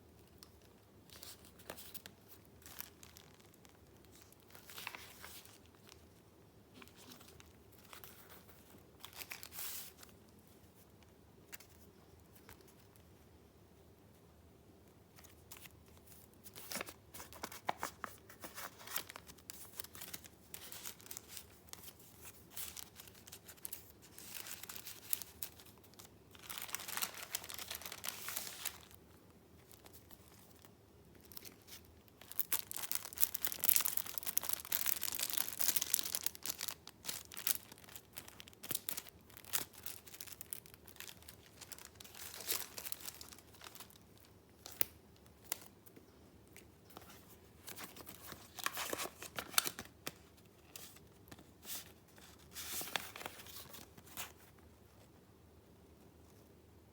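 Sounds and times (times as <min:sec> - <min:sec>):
paper rustling and crinkling: 0:00.4 - 0:06.0, 0:06.7 - 0:10.9, 0:15.1 - 0:29.0, 0:29.6 - 0:45.7, 0:46.9 - 0:54.6.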